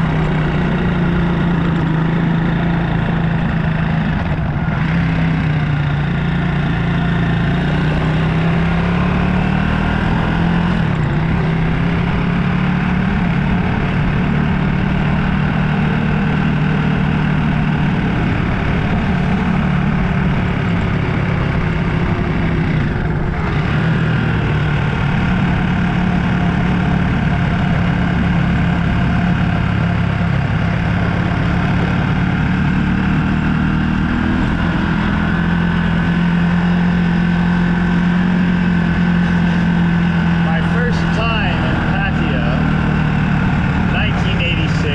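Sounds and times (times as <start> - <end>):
motorbike engine running: 0.0 - 44.9
constant rushing noise: 38.1 - 44.9.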